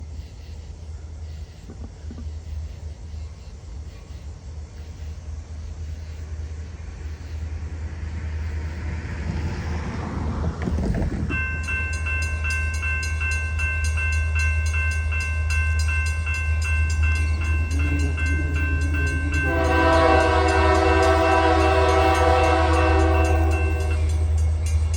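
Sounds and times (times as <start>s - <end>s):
diesel train rumble: 0.0s - 24.9s
crossing bell dinging: 10.7s - 24.9s
locomotive air horn: 17.6s - 24.2s.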